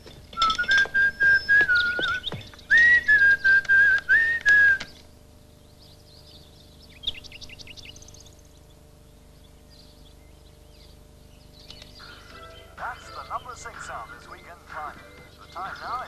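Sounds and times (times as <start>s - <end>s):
small birds chirping: 0.0s - 16.0s
person whistling a tune: 0.4s - 4.9s.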